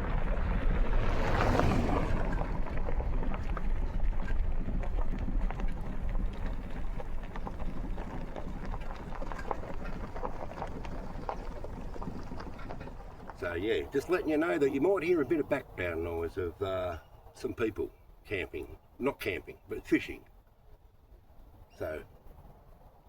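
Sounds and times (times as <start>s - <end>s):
motor vehicle rumbling: 0.0s - 23.0s.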